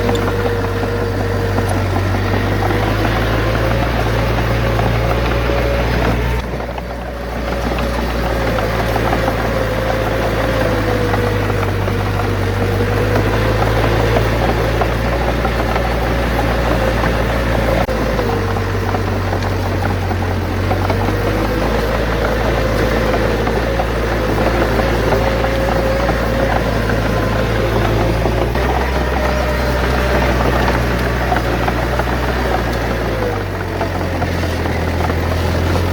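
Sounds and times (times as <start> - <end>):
bulldozer diesel engine running: 0.0 - 35.9.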